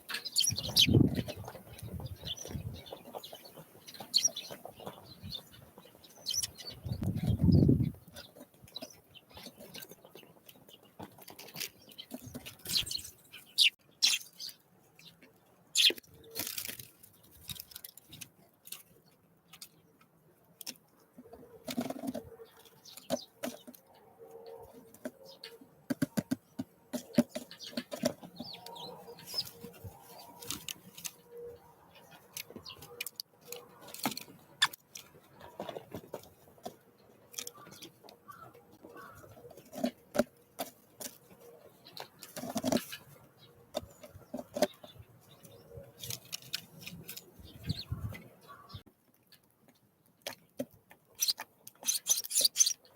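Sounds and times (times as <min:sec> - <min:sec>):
birds pecking at feeder: 0:00.0 - 0:52.9
short high bird calls: 0:51.2 - 0:52.8.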